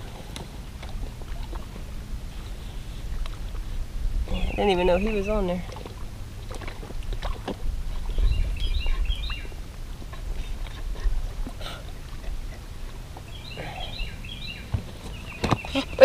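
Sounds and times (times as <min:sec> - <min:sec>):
wind on microphone: 0:00.0 - 0:13.0
songbird chirping: 0:04.3 - 0:05.9, 0:08.1 - 0:10.1, 0:13.2 - 0:16.0.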